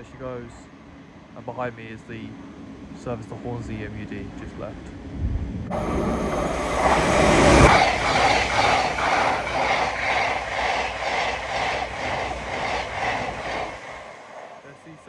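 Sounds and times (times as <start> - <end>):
passenger train passing: 5.7 - 15.0
wheels clacking over rail joints: 5.7 - 15.0.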